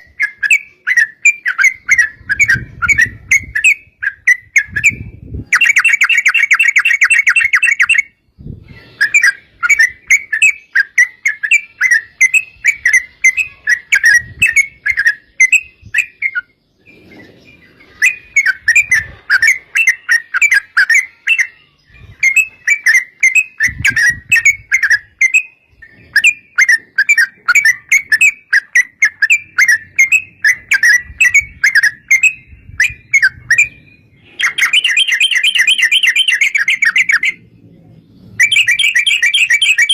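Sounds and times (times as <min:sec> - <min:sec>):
bulbul singing bubbly chirps: 0:00.0 - 0:39.9.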